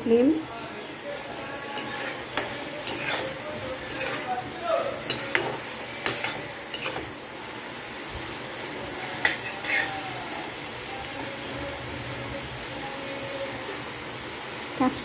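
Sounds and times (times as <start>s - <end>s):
vegetables sizzling in a wok: 0.0s - 15.0s
metal spatula scraping a pan: 1.6s - 7.2s, 9.0s - 10.1s.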